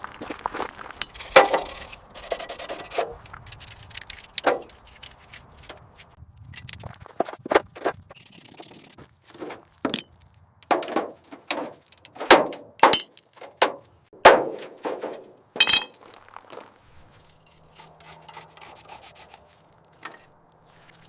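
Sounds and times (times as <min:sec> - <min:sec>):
metal tools knocking and clinking: 0:01.0 - 0:01.5, 0:09.9 - 0:13.8, 0:15.6 - 0:16.0.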